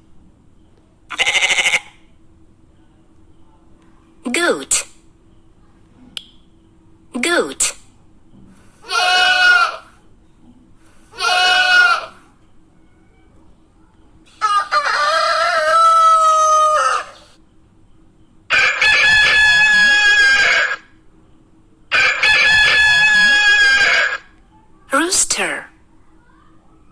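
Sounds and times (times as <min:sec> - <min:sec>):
goat bleating: 0:01.1 - 0:02.0, 0:08.8 - 0:09.9, 0:11.1 - 0:12.2.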